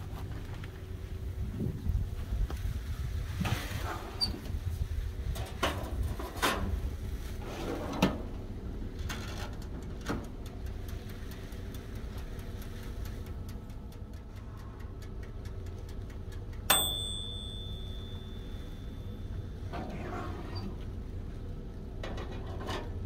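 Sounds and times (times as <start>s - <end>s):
mechanical timer ticking: 10.4s - 18.4s
timer bell ding: 16.7s - 19.4s.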